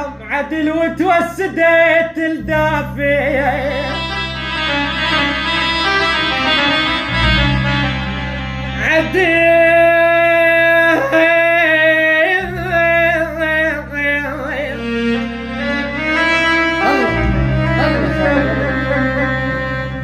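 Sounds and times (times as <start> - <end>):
person singing ornamented lament: 0.0 - 4.3, 8.8 - 15.0, 16.8 - 20.0
steady low drone: 0.0 - 20.0.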